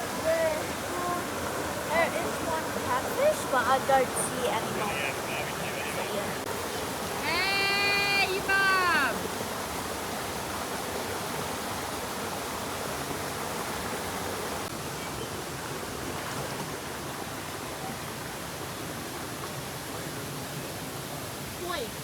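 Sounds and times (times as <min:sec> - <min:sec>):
water running over small cascades: 0:00.0 - 0:22.0.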